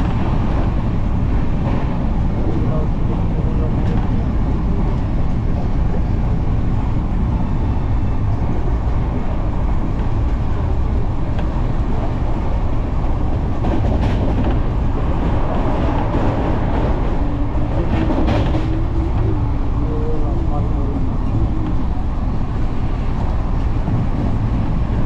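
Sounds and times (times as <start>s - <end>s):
train wheels rumbling on track: 0.0s - 25.0s.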